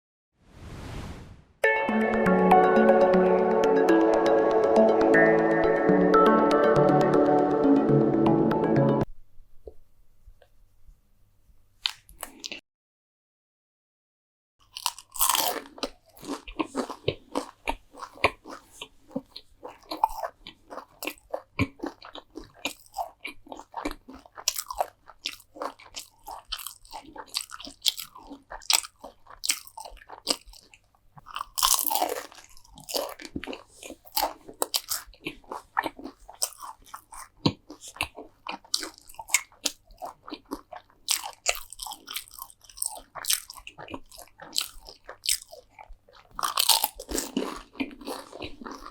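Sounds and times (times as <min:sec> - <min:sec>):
chewing crunchy food: 0:11.8 - 0:12.6, 0:14.6 - 0:48.9.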